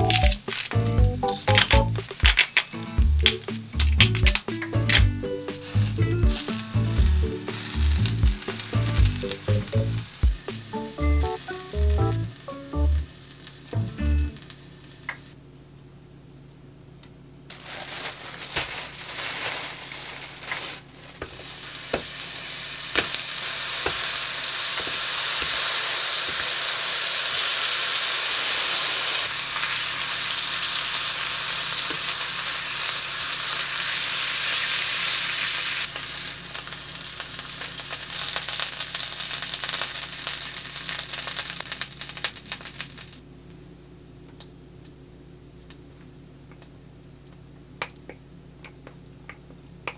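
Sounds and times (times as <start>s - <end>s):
meat sizzling in a pan: 0.0s - 15.3s, 19.8s - 43.2s.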